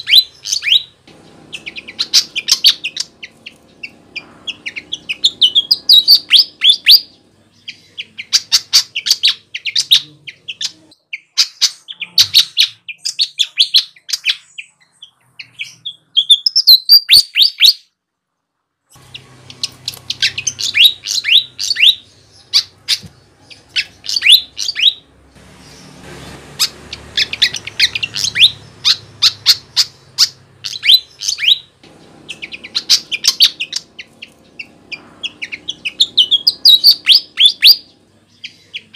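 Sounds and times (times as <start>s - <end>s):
flycatcher singing high chirps: 0.0s - 11.4s, 19.0s - 26.0s, 26.6s - 38.9s.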